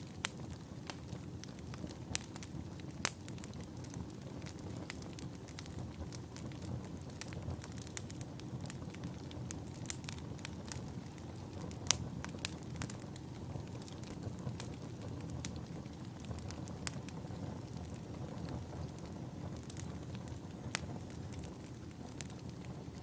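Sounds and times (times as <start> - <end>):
low rumble of burning: 0.0 - 23.0
wood fire crackling and popping: 0.0 - 23.0.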